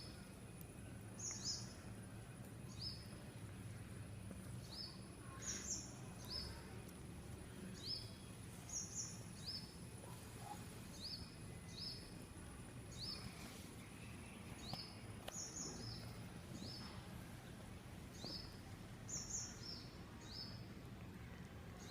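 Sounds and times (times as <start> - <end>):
low steady hum: 0.0 - 21.9
small bird chirping: 1.2 - 1.9, 4.5 - 6.6, 7.7 - 12.1, 12.9 - 16.9, 18.1 - 20.6.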